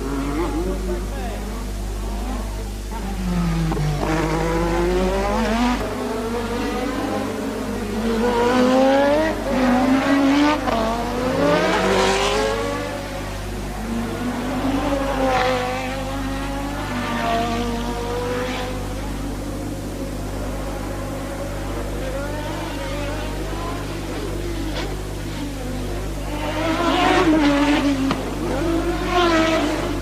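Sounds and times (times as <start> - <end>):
racing cars accelerating: 0.0 - 30.0.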